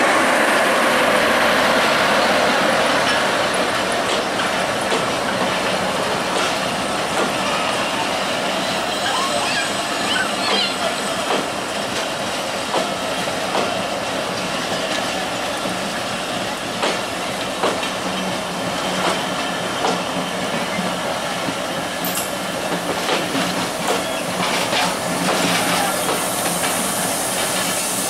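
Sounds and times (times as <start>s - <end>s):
train rolling rumble: 0.0s - 28.0s
hiss: 22.0s - 28.0s.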